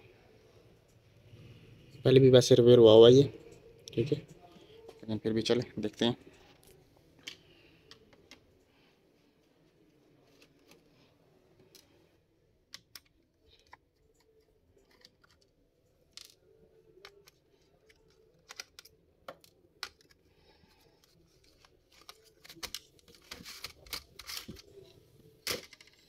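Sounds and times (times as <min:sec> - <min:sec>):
screwdriver and plastic parts clicking: 0:12.7 - 0:16.4, 0:17.0 - 0:20.2.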